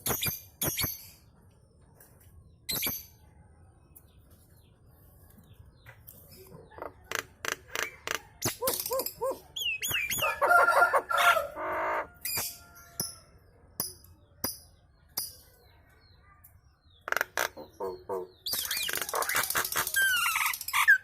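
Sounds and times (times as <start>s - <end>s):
other birds calling: 5.8s - 13.2s, 16.8s - 21.0s.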